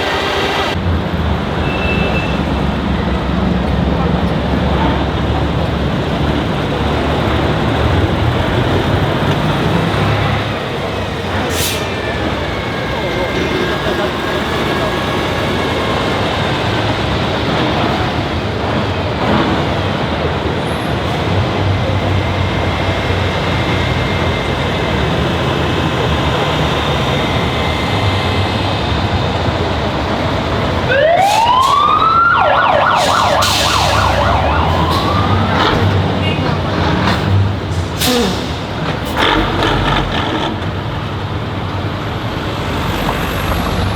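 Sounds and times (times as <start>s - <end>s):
street noise: 0.0s - 43.9s
vehicle engine rumble: 0.0s - 43.9s
siren wailing and warbling: 30.8s - 36.4s.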